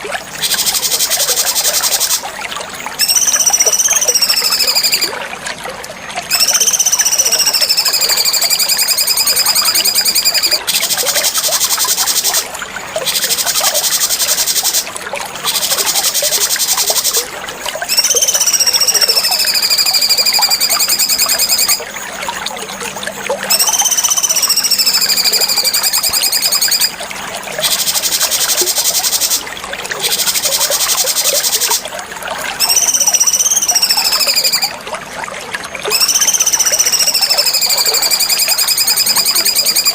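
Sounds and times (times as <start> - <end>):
faint trickling water: 0.0 - 39.9
songbird singing: 3.0 - 5.1, 6.3 - 11.0, 17.9 - 21.8, 23.5 - 26.9, 32.6 - 34.8.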